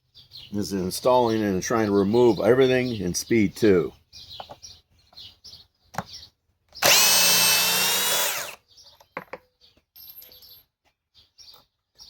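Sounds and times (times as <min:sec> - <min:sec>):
cordless drill driving a screw: 0:06.8 - 0:08.6.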